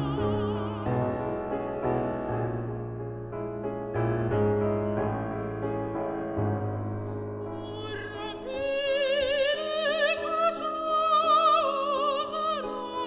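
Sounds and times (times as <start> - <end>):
soprano singing with vibrato: 0.0 - 1.4, 7.6 - 13.0
piano chords: 0.0 - 13.0.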